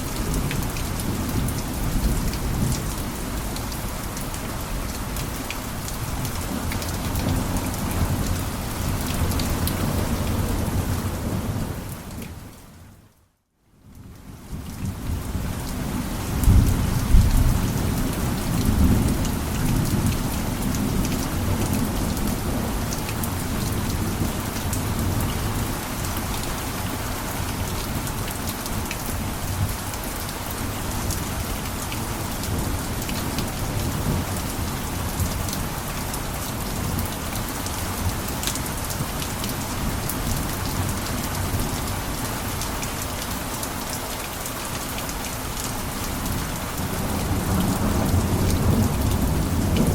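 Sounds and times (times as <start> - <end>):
heavy rain falling: 0.0 - 12.9, 14.0 - 49.9
low rumble of thunder: 14.4 - 25.8, 46.2 - 49.9.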